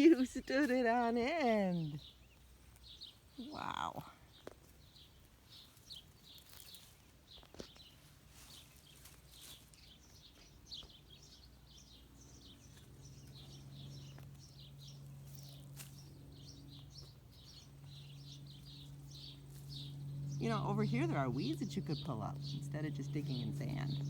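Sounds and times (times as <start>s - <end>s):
small birds chirping: 0.0s - 24.0s
low steady drone: 11.7s - 24.0s.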